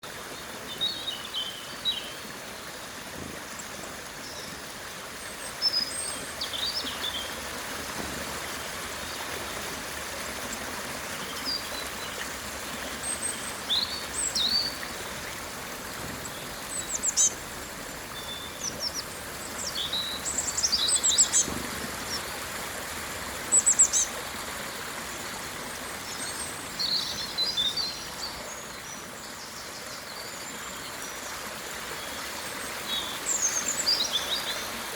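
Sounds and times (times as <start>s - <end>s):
small birds chirping and trilling: 3.6s - 22.4s, 23.5s - 24.2s, 25.7s - 31.4s.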